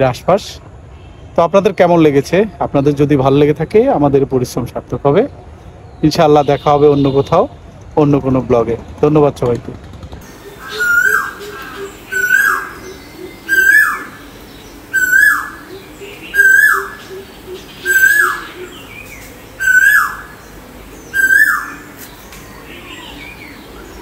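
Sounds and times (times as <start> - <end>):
whistled bird call: 10.4 - 14.3, 14.9 - 18.9, 19.6 - 20.4, 21.1 - 21.9.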